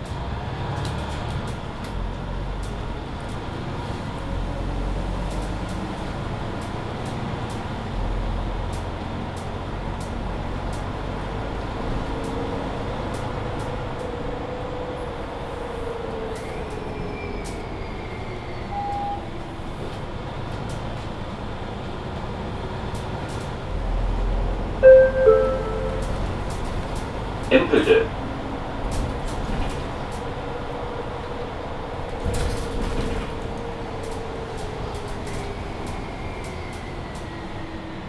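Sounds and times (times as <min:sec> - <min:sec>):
bus engine running: 0:00.0 - 0:38.0
short beep: 0:24.8 - 0:26.3.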